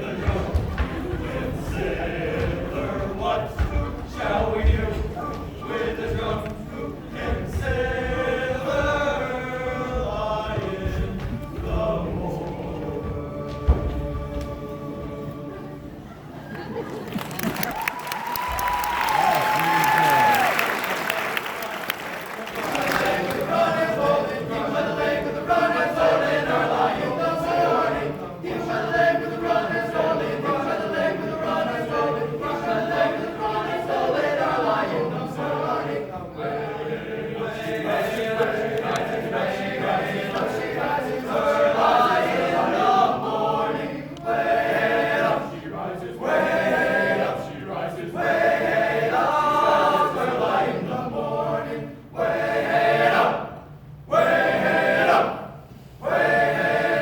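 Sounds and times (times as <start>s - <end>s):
a cappella choir singing: 0.0s - 17.7s, 20.9s - 57.0s.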